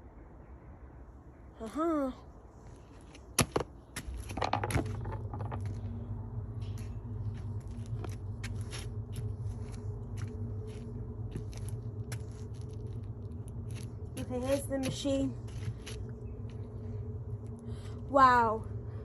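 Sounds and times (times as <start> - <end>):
stones knocking in drum: 3.4 - 5.7.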